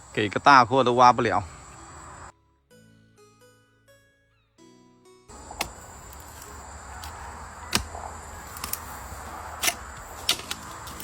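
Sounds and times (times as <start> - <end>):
digging tool striking stony soil: 5.3 - 11.0
rustle of loosened earth and stones: 5.3 - 11.0.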